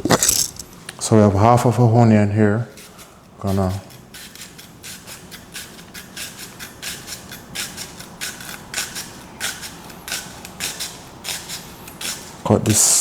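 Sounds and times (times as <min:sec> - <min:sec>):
knife slicing onion on board: 0:02.7 - 0:12.8.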